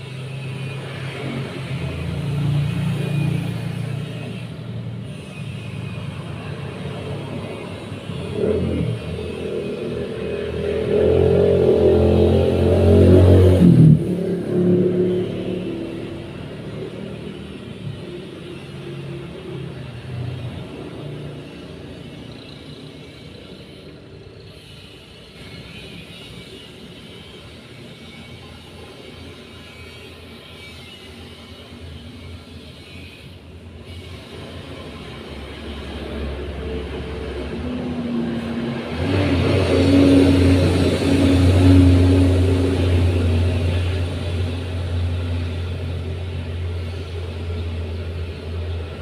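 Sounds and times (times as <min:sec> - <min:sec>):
low traffic rumble: 0:00.0 - 0:27.8, 0:31.2 - 0:49.0
motor vehicle passing: 0:06.2 - 0:17.8, 0:34.5 - 0:49.0.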